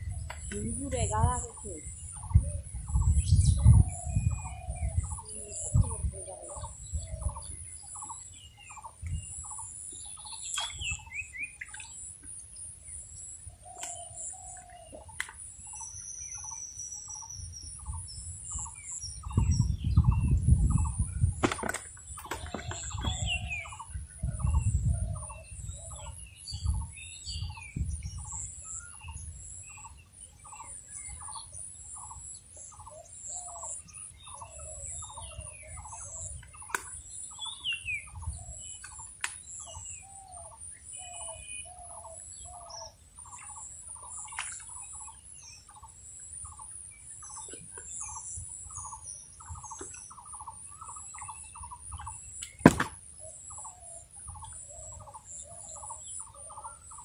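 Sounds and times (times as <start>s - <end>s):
higher bird chirps: 22.1s - 24.6s.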